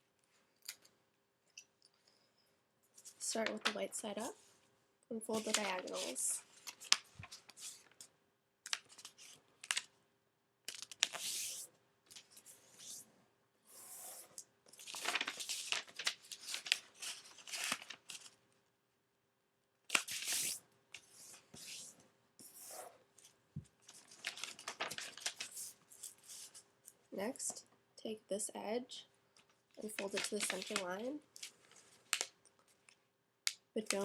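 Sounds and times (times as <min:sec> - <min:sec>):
paper rustling and crinkling: 0:05.3 - 0:08.1, 0:08.7 - 0:09.9, 0:14.1 - 0:18.4, 0:19.9 - 0:21.9, 0:22.8 - 0:26.6, 0:29.8 - 0:32.9.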